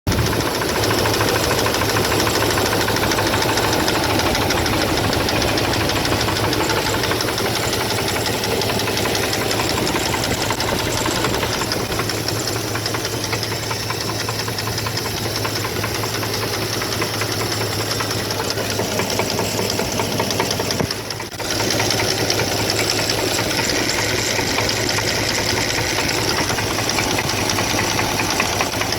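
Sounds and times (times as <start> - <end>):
engine running with fast knock: 0.0 - 28.9.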